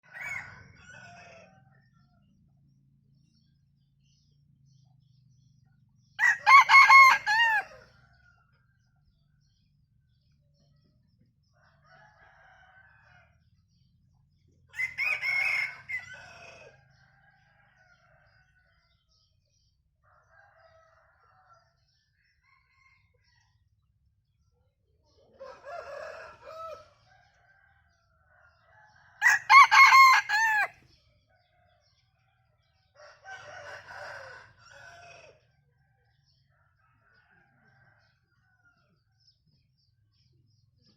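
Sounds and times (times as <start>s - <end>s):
rooster crowing: 0.0s - 1.6s, 6.2s - 7.8s, 14.8s - 16.8s, 25.4s - 26.9s, 28.7s - 30.8s, 33.0s - 35.4s
distant roosters crowing: 0.0s - 2.2s, 6.2s - 8.2s, 14.7s - 18.7s, 25.3s - 30.8s, 33.0s - 35.5s.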